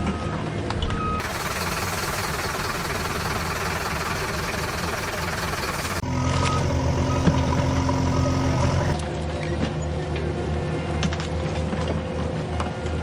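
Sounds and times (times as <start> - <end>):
engine hum: 1.2 - 9.8.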